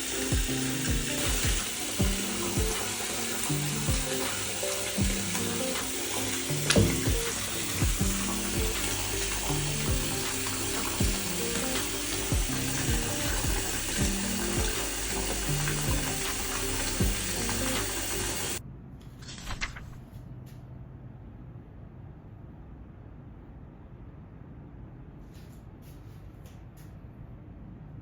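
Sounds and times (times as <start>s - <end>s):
running water hissing: 0.0s - 18.6s
soft background music: 0.0s - 18.6s.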